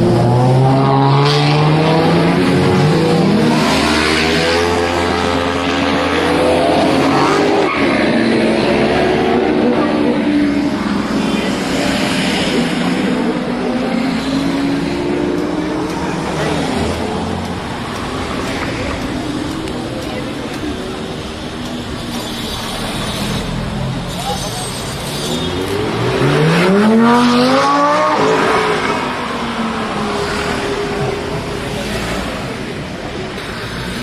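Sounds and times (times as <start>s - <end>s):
road traffic: 0.0s - 34.0s
sports car engine revving: 25.5s - 31.6s.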